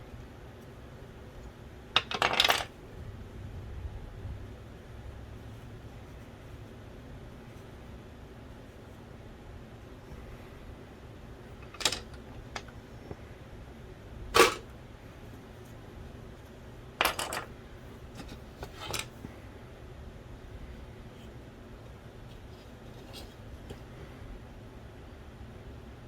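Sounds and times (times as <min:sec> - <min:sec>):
clicks of small parts being handled: 0:02.0 - 0:02.7, 0:11.6 - 0:12.8, 0:17.0 - 0:17.5, 0:18.2 - 0:19.2.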